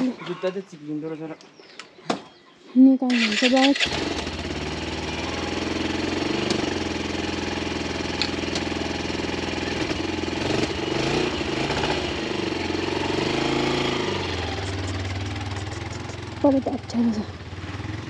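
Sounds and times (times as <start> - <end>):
motorcycle engine idling: 3.1 - 18.0.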